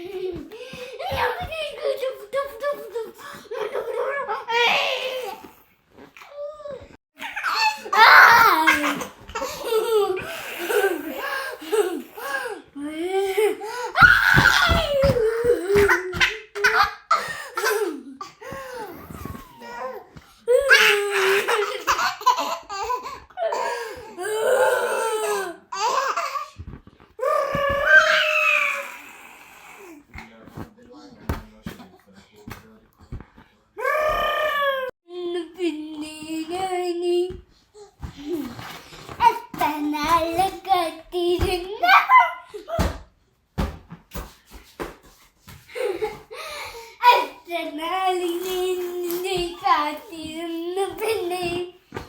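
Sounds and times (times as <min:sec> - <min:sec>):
baby laughing: 0:19.0 - 0:23.3.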